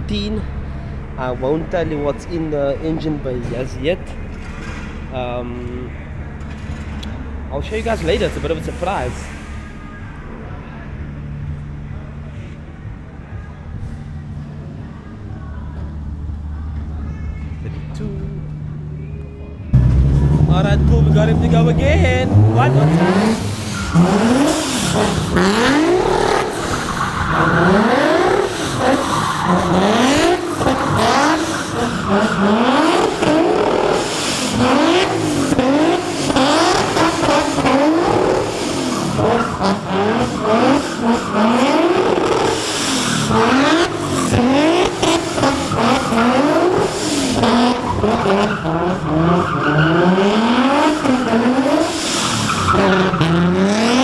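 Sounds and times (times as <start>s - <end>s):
car engine revving: 0.0s - 54.0s
tyres squealing: 21.0s - 54.0s.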